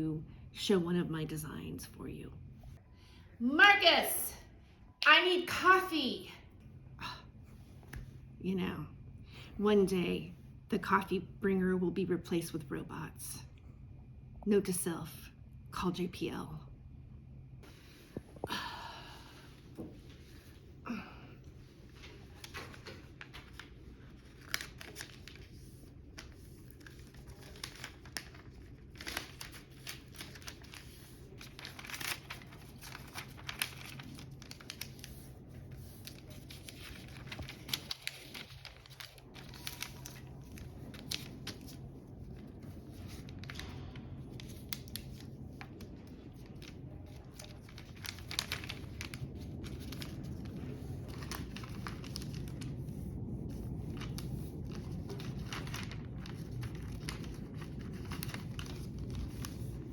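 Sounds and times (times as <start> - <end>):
paper crinkling and rustling: 21.4 - 59.9.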